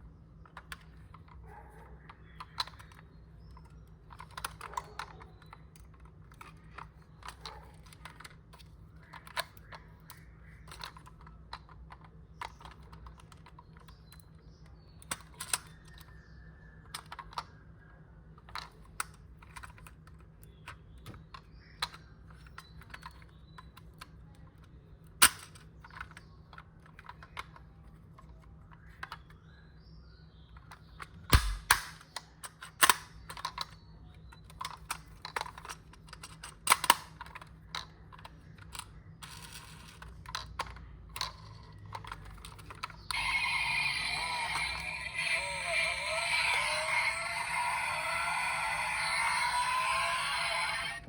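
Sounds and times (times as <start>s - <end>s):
toy car and packaging handled: 2.4s - 14.4s, 22.2s - 29.4s, 33.3s - 51.0s.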